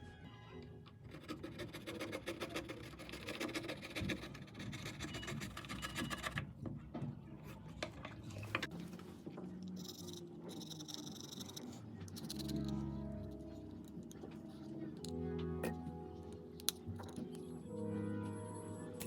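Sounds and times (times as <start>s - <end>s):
tool scraping phone body: 1.2s - 6.4s.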